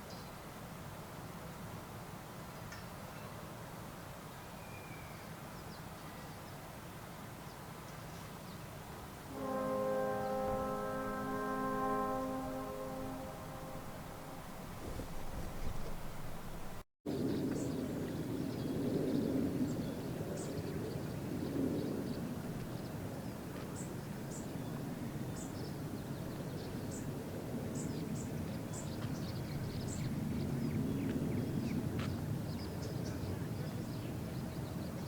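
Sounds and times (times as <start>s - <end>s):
low wind rumble: 9.1s - 35.0s.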